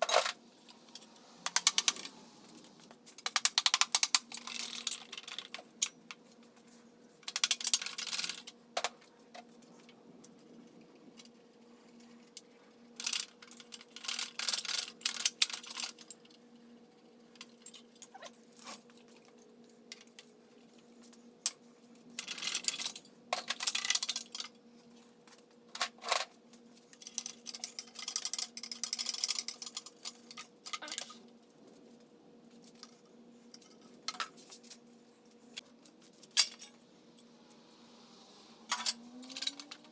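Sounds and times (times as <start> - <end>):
low hum: 0.3 - 2.9, 35.5 - 39.9
metal tools clinking: 35.9 - 39.9.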